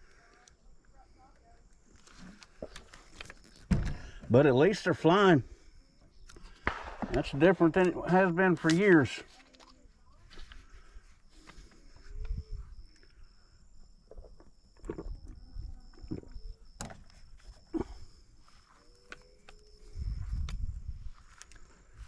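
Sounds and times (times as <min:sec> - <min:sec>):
sharp clicks and pops: 0:06.2 - 0:09.8
wind rumbling on microphone: 0:11.8 - 0:12.9, 0:19.8 - 0:21.3.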